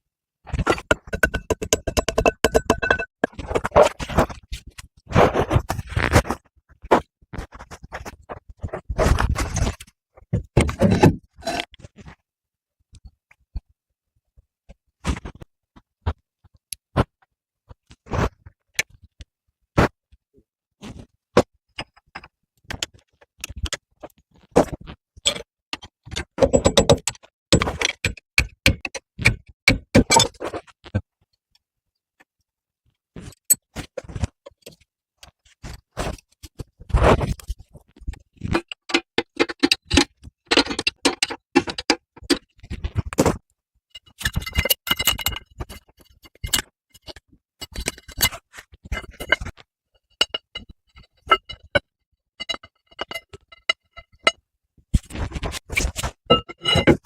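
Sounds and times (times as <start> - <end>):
metal tools clicking and scraping: 0.6 - 3.8, 38.4 - 42.5, 43.9 - 51.8, 52.4 - 54.4, 55.8 - 57.0.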